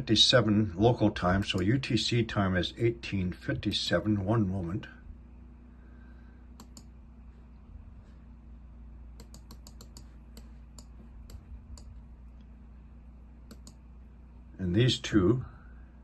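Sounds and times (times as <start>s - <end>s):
steady low hum: 0.0s - 16.0s
keyboard and mouse clicks: 6.6s - 6.9s, 9.2s - 12.0s, 13.5s - 13.8s.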